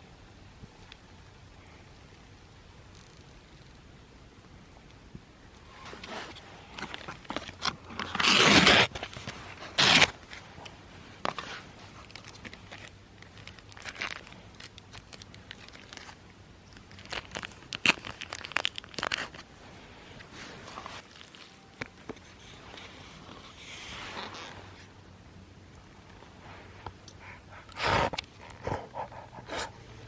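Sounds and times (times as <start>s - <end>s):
rustling crinkling handling noise: 5.8s - 24.9s.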